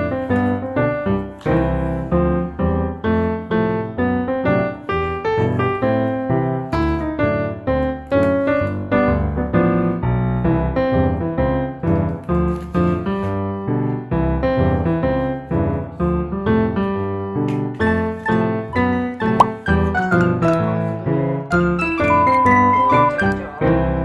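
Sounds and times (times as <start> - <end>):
piano tune: 0.0 - 24.0.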